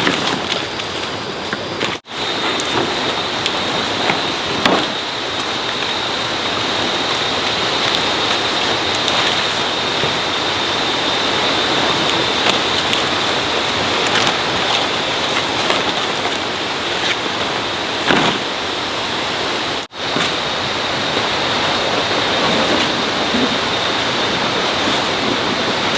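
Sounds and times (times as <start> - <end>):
steady rain: 0.0 - 25.9
thin high steady whine: 0.0 - 25.9.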